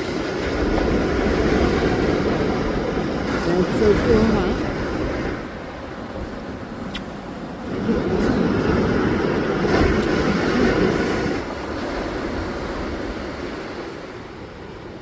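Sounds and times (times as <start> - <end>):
distant rocket launch rumble: 7.4 - 14.0.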